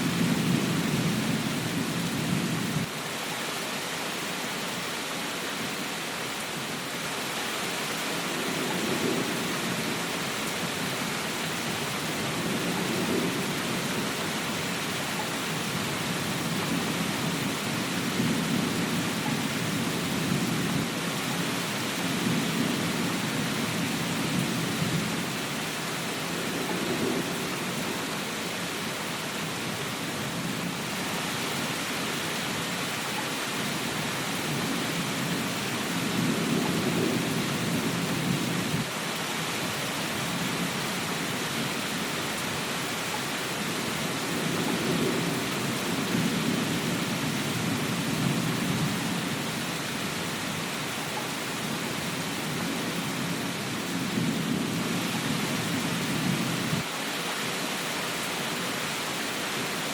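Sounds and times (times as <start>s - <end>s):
low rolling thunder: 0.0s - 2.9s, 8.3s - 28.4s, 33.9s - 38.9s, 44.2s - 49.7s, 51.8s - 56.9s
steady rain falling: 0.0s - 59.9s.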